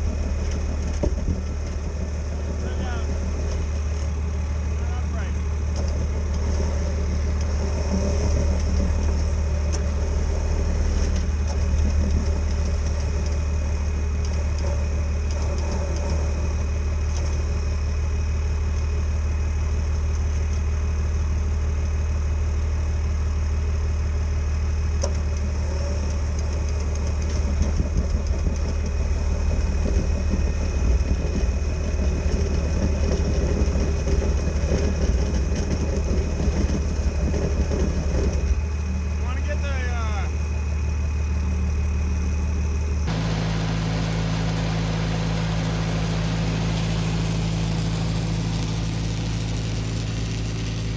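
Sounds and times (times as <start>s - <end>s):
machine humming: 0.0s - 18.3s, 25.1s - 50.9s
faint high whine: 43.1s - 50.9s.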